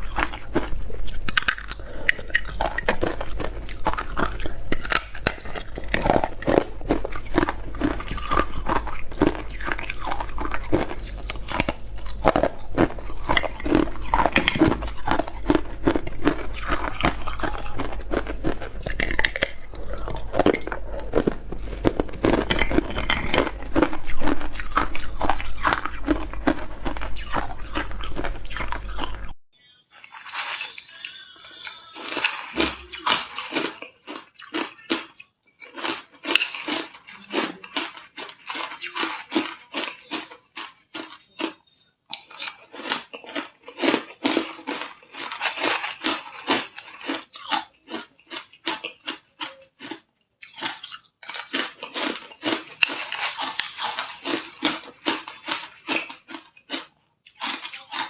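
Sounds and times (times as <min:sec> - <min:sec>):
person chewing ice: 0:00.0 - 0:29.4, 0:30.0 - 0:58.0.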